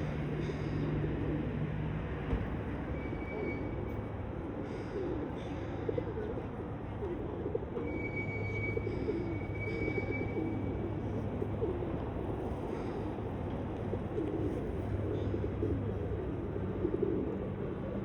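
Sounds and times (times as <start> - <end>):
pigeons cooing: 8.8 - 17.9.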